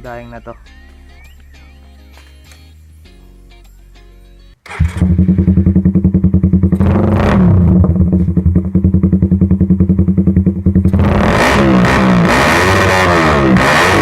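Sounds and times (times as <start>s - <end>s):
motorcycle engine idling loudly: 4.7s - 12.1s.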